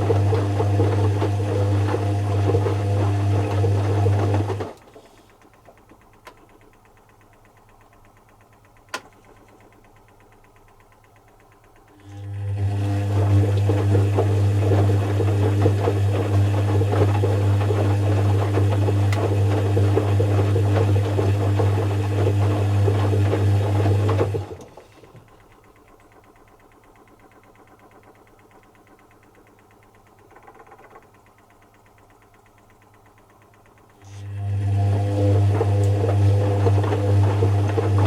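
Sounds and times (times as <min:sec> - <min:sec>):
washing machine humming and rattling: 0:00.0 - 0:38.0.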